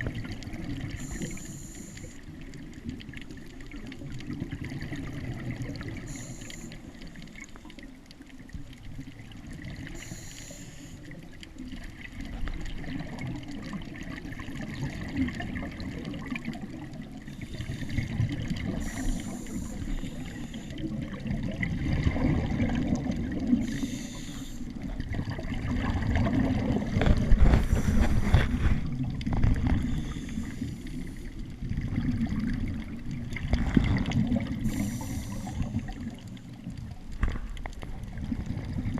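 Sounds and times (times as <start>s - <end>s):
exhaled bubbles gurgling: 0.0s - 38.9s
diver's regulator hissing: 1.0s - 2.2s, 6.0s - 7.0s, 9.9s - 11.0s, 18.7s - 20.8s, 23.6s - 24.7s, 29.8s - 31.3s, 34.6s - 35.9s.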